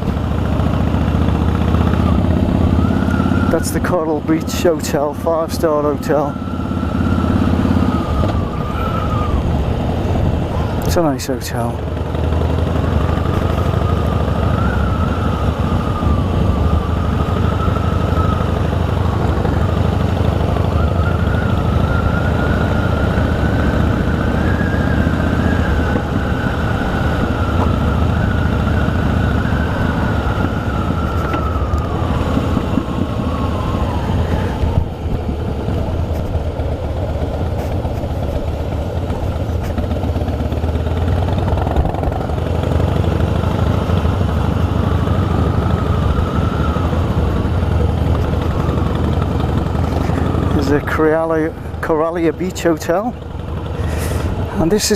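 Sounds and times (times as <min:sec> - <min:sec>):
motorcycle engine rumble: 0:00.0 - 0:54.9
thin wavering whine: 0:13.3 - 0:36.4.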